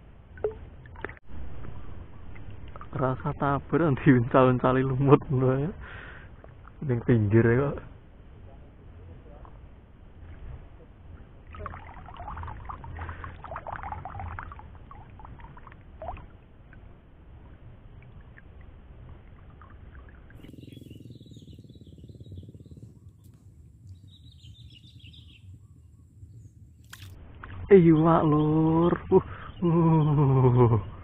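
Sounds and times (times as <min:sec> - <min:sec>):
water sloshing and splashing: 0:00.3 - 0:01.7, 0:06.2 - 0:06.8, 0:10.2 - 0:20.5, 0:26.8 - 0:27.7
faint bird chirps: 0:19.4 - 0:31.0.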